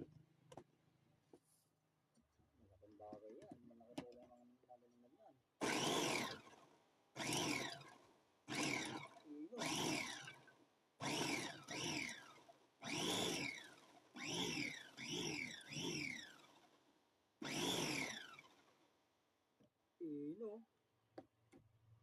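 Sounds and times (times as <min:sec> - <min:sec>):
food processor motor whining: 0:05.6 - 0:16.8, 0:17.4 - 0:18.9.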